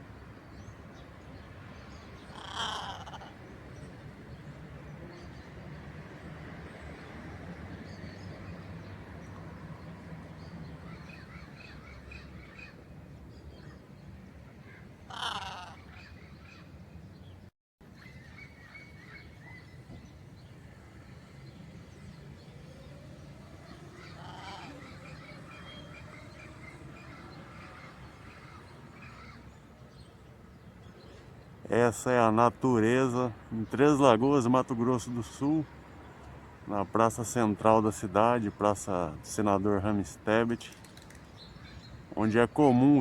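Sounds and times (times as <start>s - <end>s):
birds chirping: 0.1s - 43.0s
loud harsh bird squawk: 2.3s - 3.4s, 14.6s - 16.7s, 23.6s - 29.6s.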